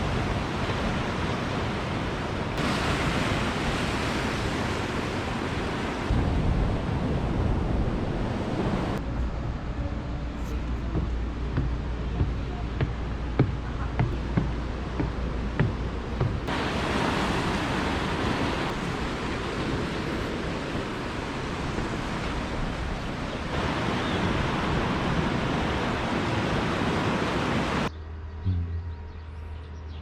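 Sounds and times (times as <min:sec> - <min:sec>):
sea surf washing on shore: 0:00.0 - 0:09.0, 0:13.9 - 0:27.9
wind on microphone: 0:00.0 - 0:29.0
low hum: 0:06.1 - 0:16.4, 0:27.9 - 0:30.0.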